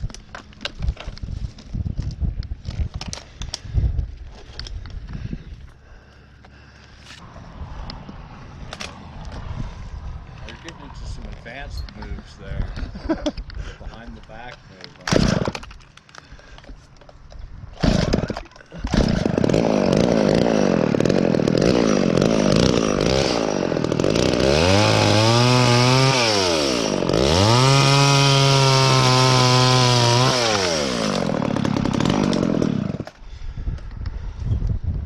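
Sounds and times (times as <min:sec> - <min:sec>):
chainsaw cutting branches: 0:14.3 - 0:16.5, 0:17.8 - 0:33.4.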